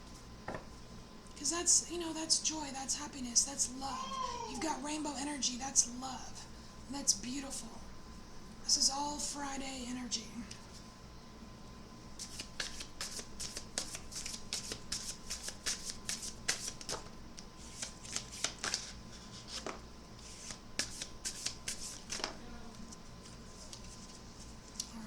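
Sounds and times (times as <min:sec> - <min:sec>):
cards being shuffled: 0:12.2 - 0:25.0.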